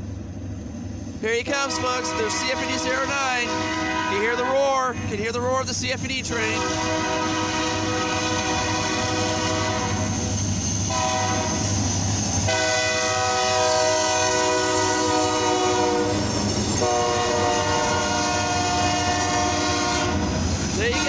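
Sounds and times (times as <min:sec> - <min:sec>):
passing train rumble: 0:00.0 - 0:21.0
locomotive air horn blasts: 0:01.6 - 0:05.2, 0:06.4 - 0:10.1, 0:10.9 - 0:11.6, 0:12.5 - 0:16.2, 0:16.8 - 0:21.0.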